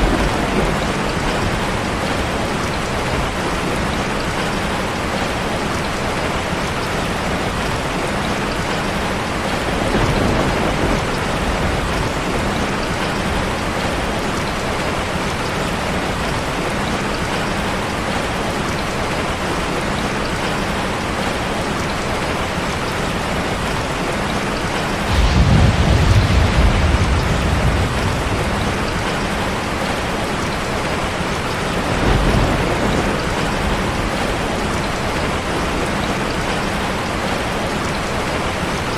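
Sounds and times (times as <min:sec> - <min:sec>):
low rumbles of thunder: 0:00.0 - 0:06.2, 0:09.4 - 0:14.9, 0:25.0 - 0:37.4
steady rain: 0:00.0 - 0:38.9.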